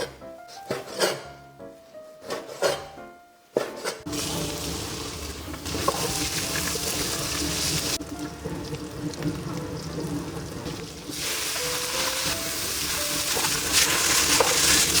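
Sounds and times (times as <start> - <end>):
food sizzling in a pan: 4.1 - 8.7, 10.6 - 15.0.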